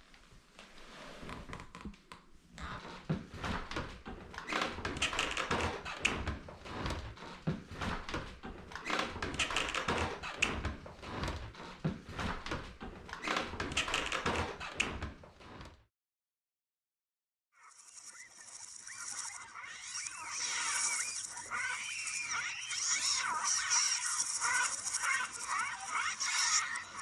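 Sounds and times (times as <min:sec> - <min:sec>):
rapid pecking taps and knocks: 0:03.2 - 0:11.0.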